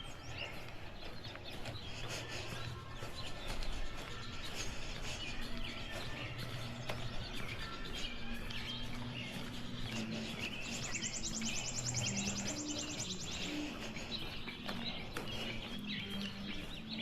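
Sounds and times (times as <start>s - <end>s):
distant traffic hum: 0.0s - 17.0s
footsteps on pavement: 0.0s - 17.0s
songbirds chirping: 0.0s - 17.0s
rapid high bird trill: 10.0s - 14.1s.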